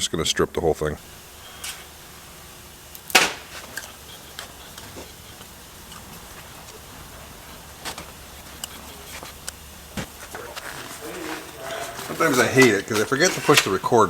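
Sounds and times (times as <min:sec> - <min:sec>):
faint steady hum: 0:00.0 - 0:14.0
sharp knock: 0:03.1 - 0:03.6.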